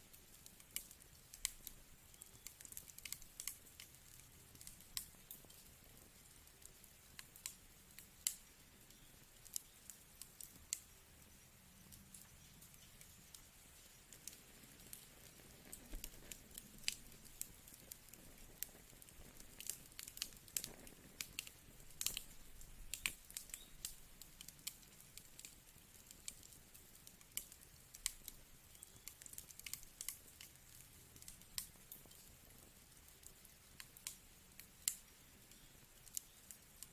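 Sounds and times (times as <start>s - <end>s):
faint hiss: 0.0s - 36.9s
wood fire crackling: 0.0s - 36.9s.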